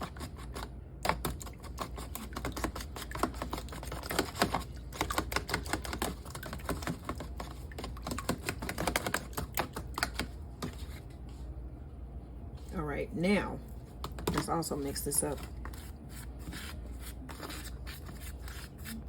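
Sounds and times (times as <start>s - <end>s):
whisk clicking against container: 0.0s - 10.8s.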